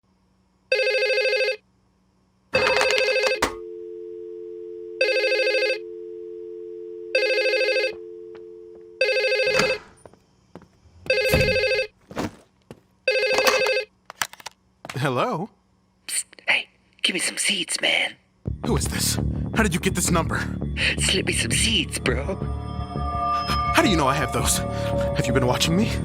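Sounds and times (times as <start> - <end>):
electronic telephone ringing: 0.7 - 1.6, 2.6 - 9.8, 11.1 - 11.9, 13.1 - 13.9
steady tone: 19.8 - 26.0.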